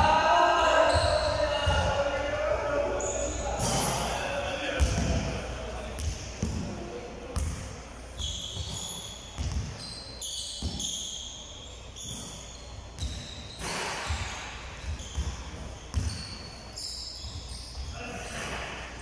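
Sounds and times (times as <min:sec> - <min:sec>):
short high squeaks: 0:08.2 - 0:18.6.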